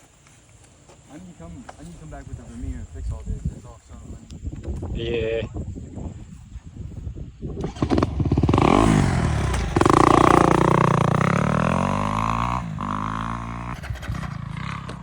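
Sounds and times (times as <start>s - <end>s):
dirt bike engine revving: 7.6s - 15.0s.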